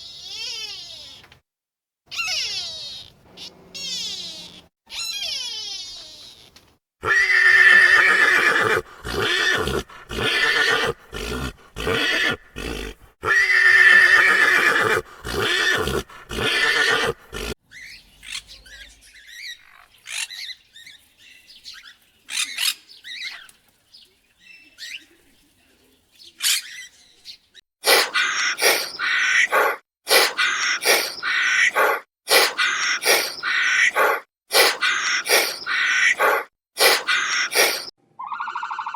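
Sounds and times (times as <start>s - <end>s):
equine calling: 7.0s - 17.6s, 27.8s - 37.9s.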